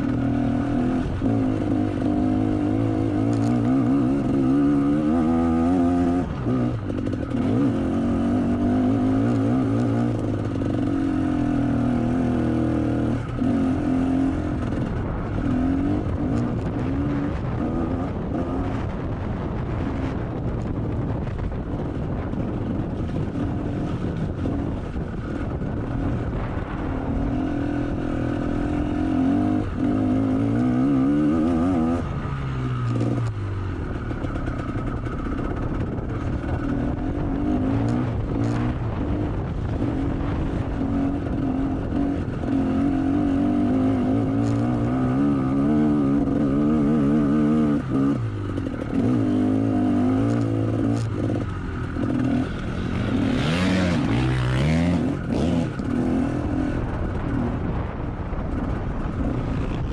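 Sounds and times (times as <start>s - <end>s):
motocross bike engine revving: 0.0s - 19.0s, 34.5s - 57.7s.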